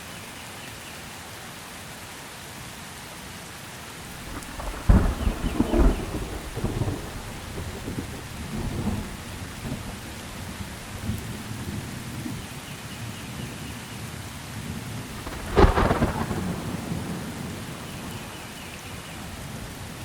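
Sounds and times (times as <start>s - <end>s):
steady rain: 0.0s - 20.0s
close thunderclap: 4.1s - 11.3s, 15.1s - 18.2s
thunder rumbling: 4.1s - 12.4s, 15.1s - 18.4s.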